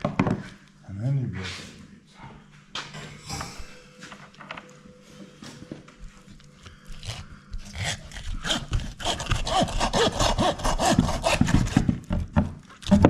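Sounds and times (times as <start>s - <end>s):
hand saw sawing through bone: 7.0s - 12.1s.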